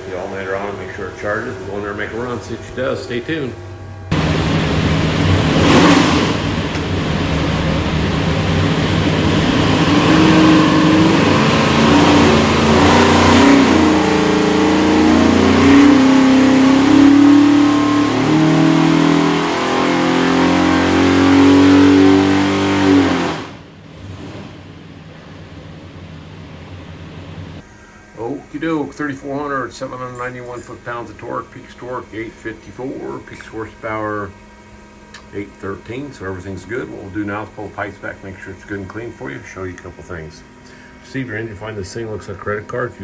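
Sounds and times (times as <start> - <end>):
car engine revving on a dyno: 0.0 - 27.6.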